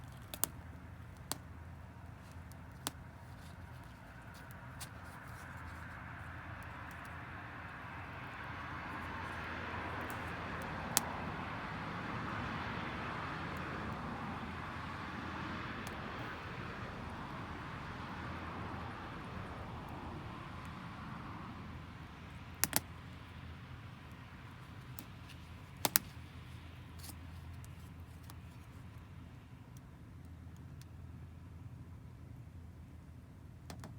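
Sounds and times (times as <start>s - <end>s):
burning firewood popping: 0.0s - 7.2s, 7.8s - 11.5s, 22.4s - 23.0s, 24.0s - 26.3s.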